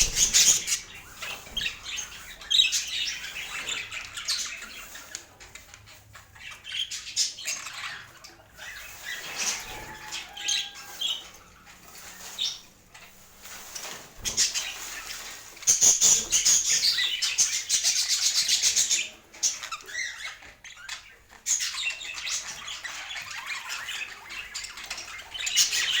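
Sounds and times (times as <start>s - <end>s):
rapid repeated strokes: 0.0s - 3.5s
budgerigars chattering and chirping: 0.0s - 26.0s.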